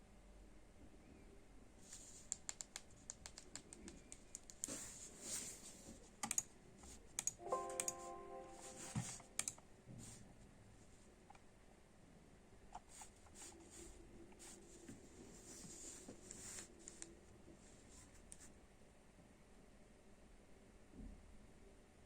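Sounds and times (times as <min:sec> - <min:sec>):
computer keyboard typing: 0:02.2 - 0:04.8, 0:06.2 - 0:06.5, 0:07.1 - 0:09.6.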